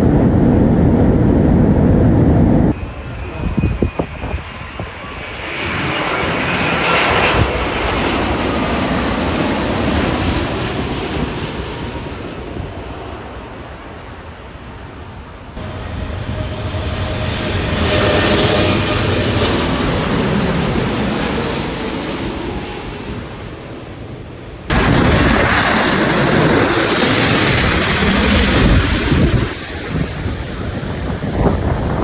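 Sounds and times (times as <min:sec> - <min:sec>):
jet airliner passing: 0:00.0 - 0:32.0.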